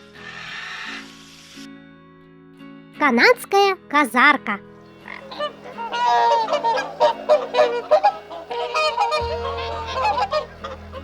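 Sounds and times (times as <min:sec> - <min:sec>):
goose honking: 0:05.0 - 0:11.0.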